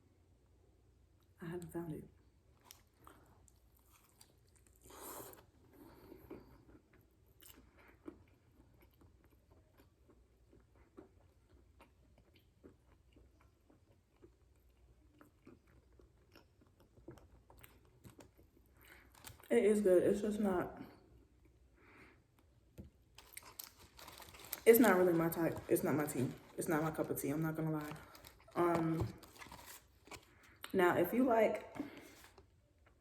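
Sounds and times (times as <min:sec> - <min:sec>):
faint chewing: 0:02.5 - 0:19.5, 0:20.9 - 0:30.8.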